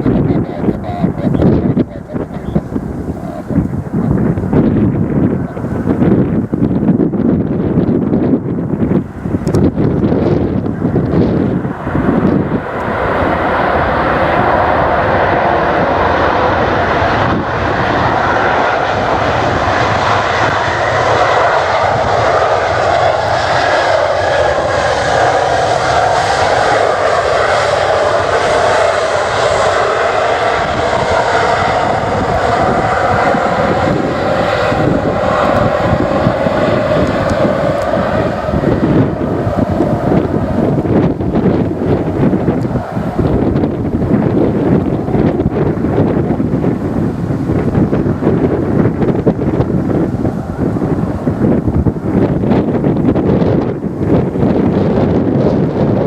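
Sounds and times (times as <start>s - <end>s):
jet engines passing: 0.0s - 56.0s
wind rumbling on microphone: 0.0s - 56.0s.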